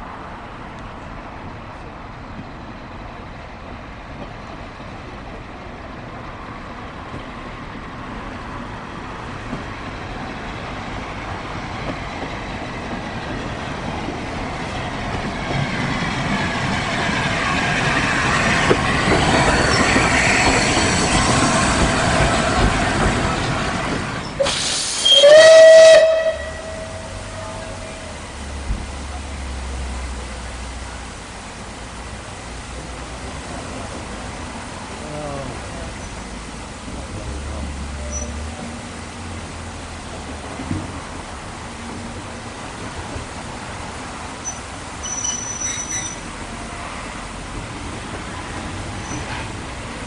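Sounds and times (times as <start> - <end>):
train passing rumble: 0.0 - 50.0
steam locomotive whistle: 24.4 - 28.2.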